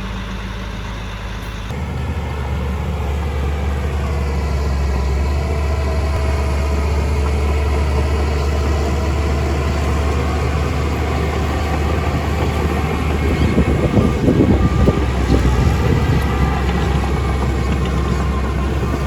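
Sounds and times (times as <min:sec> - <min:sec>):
heavy machine engine humming: 0:00.0 - 0:19.0.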